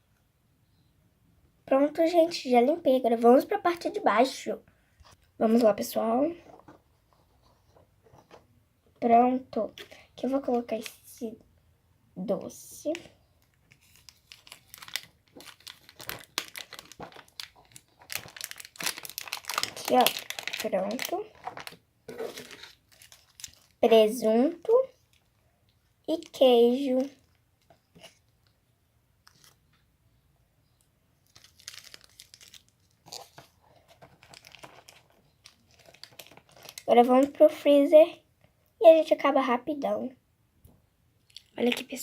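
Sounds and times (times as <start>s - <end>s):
plastic packaging crinkling: 13.4s - 24.0s, 26.1s - 28.6s, 29.2s - 29.6s, 31.2s - 37.4s, 41.3s - 42.0s.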